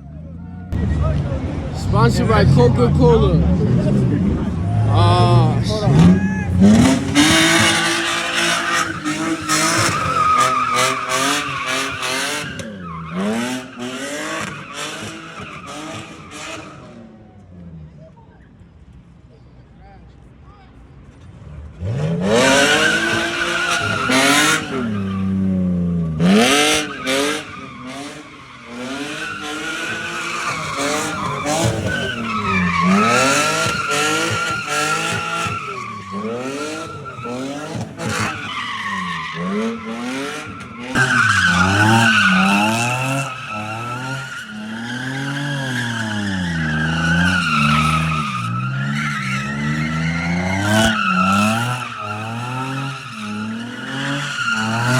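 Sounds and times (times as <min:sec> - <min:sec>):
car engine revving: 0:00.1 - 0:17.1, 0:21.3 - 0:54.9
tyre squeal: 0:05.9 - 0:16.8, 0:22.3 - 0:25.4, 0:26.1 - 0:54.9.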